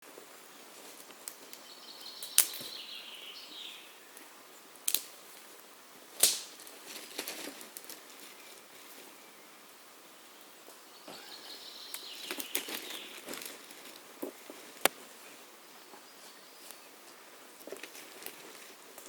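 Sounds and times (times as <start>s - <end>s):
faint falling hiss: 0.0s - 19.0s
sharp cracks or taps: 6.2s - 6.7s.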